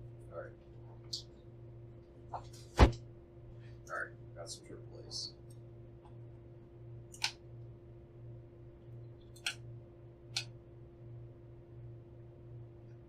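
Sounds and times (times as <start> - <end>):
steady low hum: 0.0 - 13.0
plastic clicks of batteries: 7.1 - 7.4.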